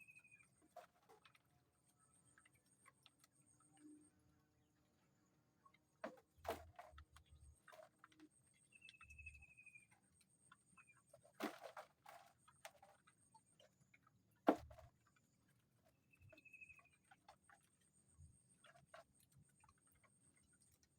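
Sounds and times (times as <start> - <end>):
knocks and taps in bird aviary: 14.4 - 15.1.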